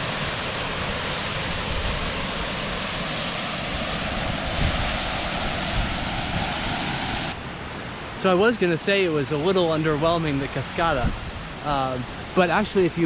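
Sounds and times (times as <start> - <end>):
wind rumbling on microphone: 0.0 - 7.8, 9.9 - 13.0
waterfall rushing: 0.0 - 13.0.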